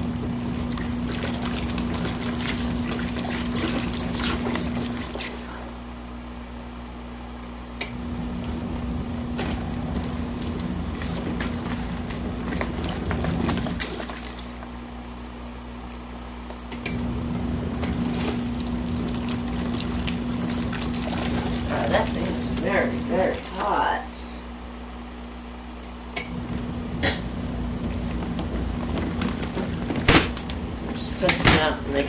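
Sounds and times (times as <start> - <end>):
washing machine motor humming: 0.0 - 32.0
water splashing and swishing: 0.4 - 5.6, 9.9 - 14.7, 17.7 - 23.9.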